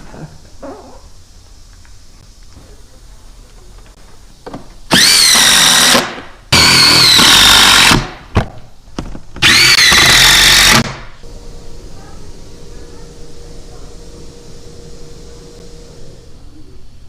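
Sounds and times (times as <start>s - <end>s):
power tool motor whine: 4.9s - 8.1s, 9.4s - 11.6s.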